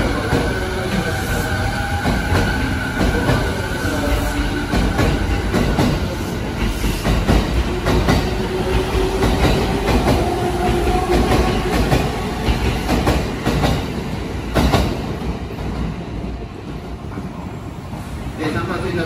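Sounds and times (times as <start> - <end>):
train wheels clacking: 0.0 - 16.0
train rumble: 0.0 - 19.0.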